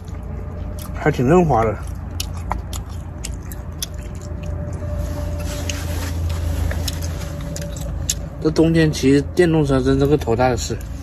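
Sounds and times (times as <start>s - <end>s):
person chewing: 0.0s - 8.6s
steady low hum: 0.0s - 11.0s
wet mouth clicks: 1.6s - 5.0s.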